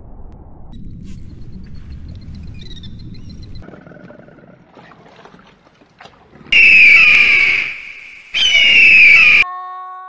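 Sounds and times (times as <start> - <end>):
bird of prey screaming: 6.6 - 9.4.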